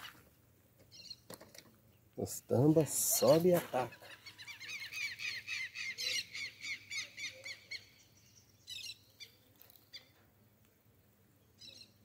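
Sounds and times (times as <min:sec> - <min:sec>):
bird calling: 0:02.9 - 0:10.2.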